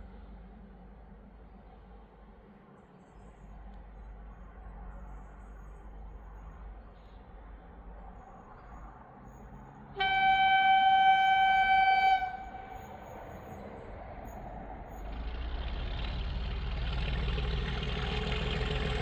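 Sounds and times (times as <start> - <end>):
low train rumble: 0.0 - 19.0
train horn: 10.0 - 13.3.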